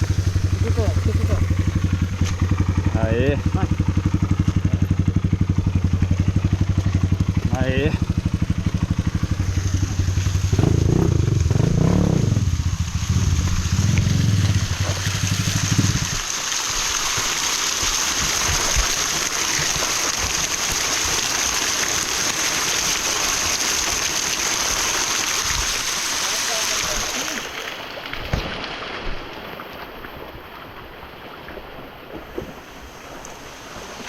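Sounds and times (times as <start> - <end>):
dirt bike engine revving: 0.0 - 16.3
waterfall rushing: 0.0 - 27.7.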